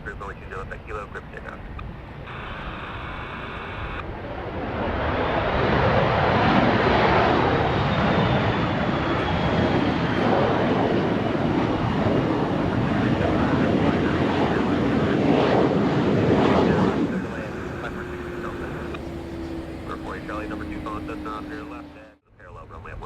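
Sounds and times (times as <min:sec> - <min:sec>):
airplane passing: 0:00.0 - 0:23.0
faint high whine: 0:02.2 - 0:04.0, 0:17.1 - 0:22.2.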